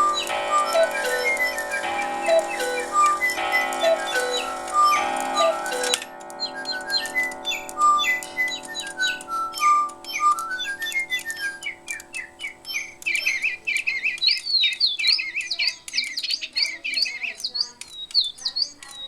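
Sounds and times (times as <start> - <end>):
birdsong with whistles and trills: 0.0 - 19.0.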